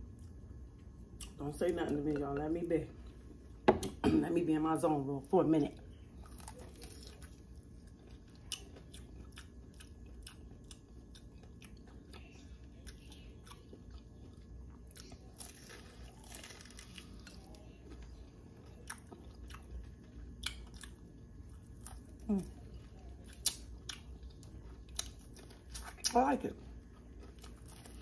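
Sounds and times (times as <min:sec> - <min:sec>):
crunching of fried crust: 0:05.8 - 0:28.0.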